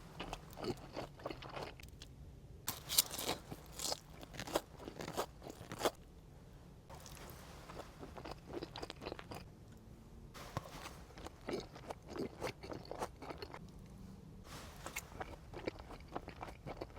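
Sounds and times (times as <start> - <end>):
chewing with wet mouth smacks: 11.2 - 13.6, 15.2 - 16.9.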